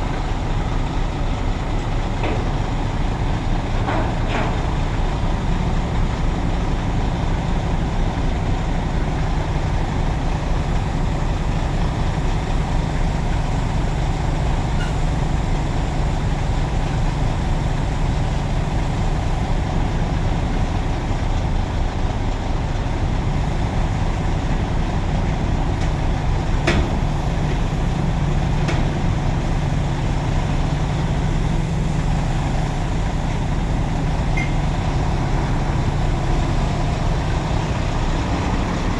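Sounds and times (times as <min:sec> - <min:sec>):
truck engine droning: 0:00.0 - 0:38.9.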